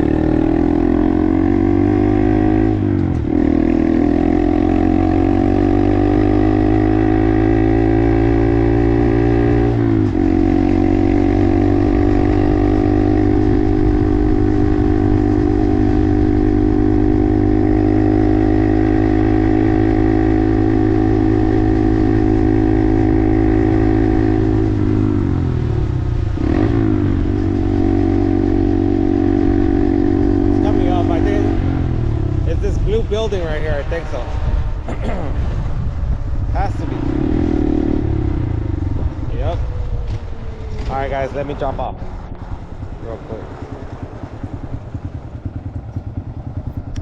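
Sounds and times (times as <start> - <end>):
minibike engine running: 39.4 - 47.0.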